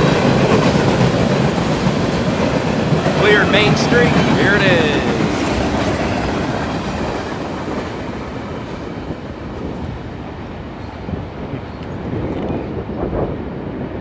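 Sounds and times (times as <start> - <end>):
freight train wheels clattering: 0.0 - 8.4.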